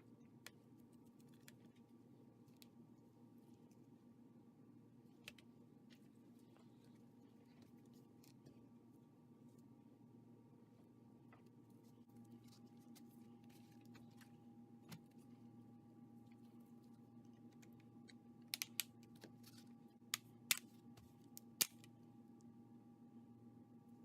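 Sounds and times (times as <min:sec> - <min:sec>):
steady low hum: 0:00.0 - 0:24.0
clicks of small laptop parts: 0:17.6 - 0:19.3.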